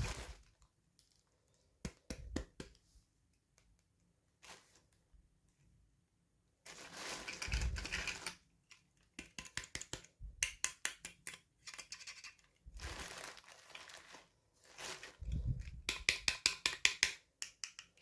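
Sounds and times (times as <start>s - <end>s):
plastic packaging crinkling: 0.0s - 1.3s, 6.7s - 8.4s, 12.8s - 15.5s.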